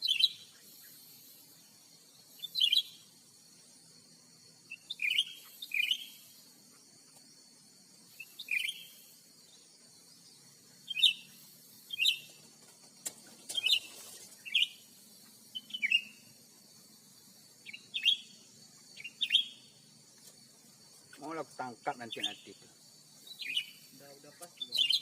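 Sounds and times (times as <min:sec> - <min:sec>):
bird chirping calls: 0:00.0 - 0:03.2, 0:04.6 - 0:06.8, 0:08.1 - 0:09.7, 0:10.3 - 0:12.4, 0:13.4 - 0:16.3, 0:17.6 - 0:19.9, 0:21.0 - 0:25.0.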